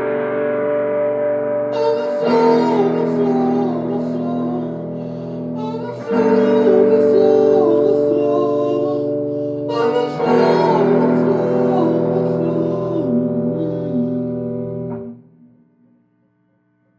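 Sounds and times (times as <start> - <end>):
guitar chords: 0.0 - 16.4
wavering wordless melody: 1.7 - 14.9.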